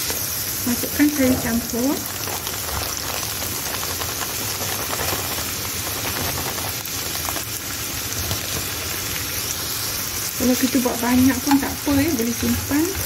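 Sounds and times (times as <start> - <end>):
chicken sizzling in hot oil: 0.0 - 13.0
vegetables poured into pan: 0.0 - 13.0.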